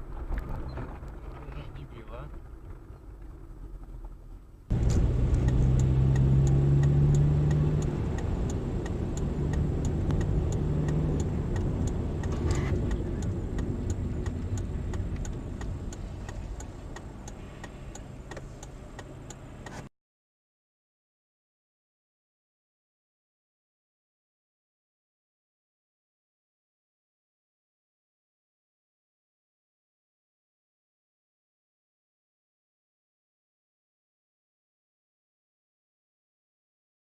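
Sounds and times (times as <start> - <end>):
car engine running: 0.0 - 19.9
faint regular ticking: 4.7 - 19.8.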